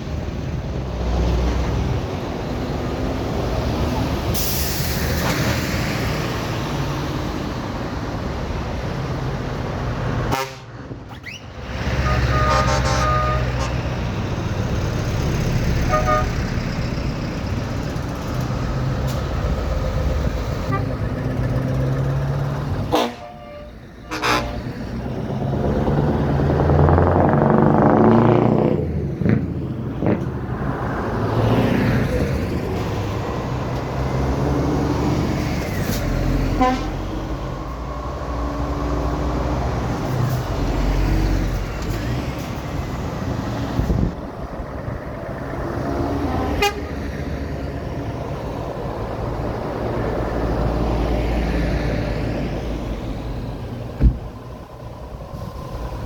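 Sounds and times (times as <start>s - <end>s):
lorry diesel engines running: 0.0s - 56.0s
truck horns tooting: 10.2s - 14.1s, 15.8s - 16.5s, 20.6s - 21.2s, 22.8s - 24.8s, 36.4s - 37.3s, 46.3s - 47.1s.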